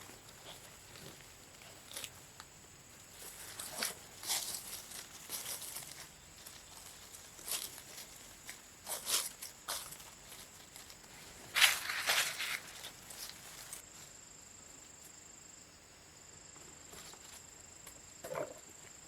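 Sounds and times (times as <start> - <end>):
rustling and crackling: 0.0 - 14.2.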